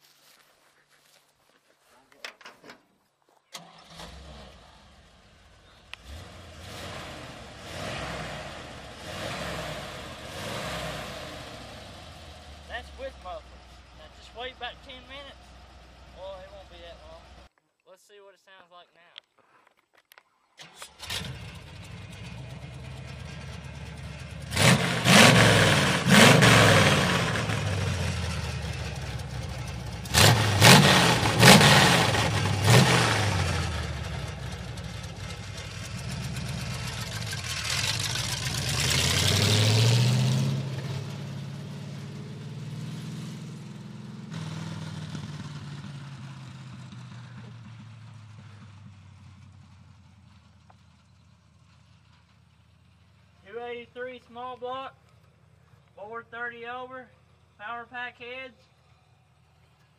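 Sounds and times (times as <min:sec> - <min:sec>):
engine idling and revving: 0:03.6 - 0:17.5, 0:20.6 - 0:53.4.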